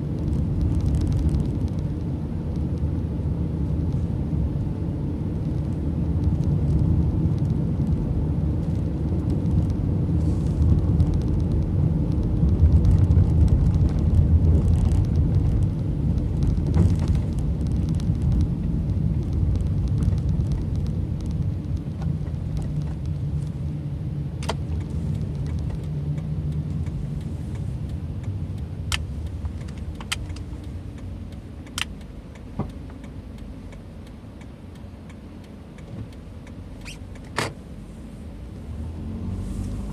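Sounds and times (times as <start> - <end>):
car road and engine noise: 0.0 - 39.9
sharp clicks: 24.4 - 34.2.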